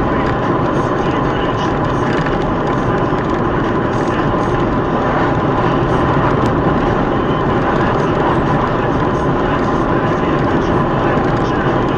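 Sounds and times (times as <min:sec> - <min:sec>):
car engine and road noise: 0:00.0 - 0:11.9.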